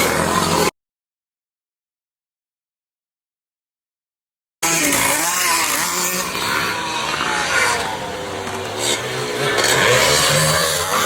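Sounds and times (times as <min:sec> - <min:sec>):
motocross engines revving: 0:00.0 - 0:00.7, 0:04.6 - 0:11.0.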